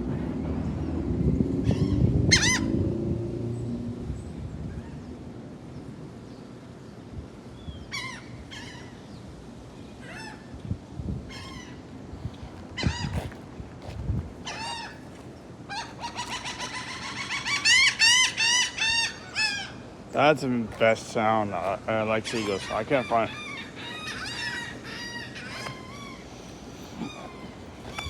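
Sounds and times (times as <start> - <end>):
seagulls calling: 1.7 - 2.8, 7.8 - 9.1, 11.3 - 28.0.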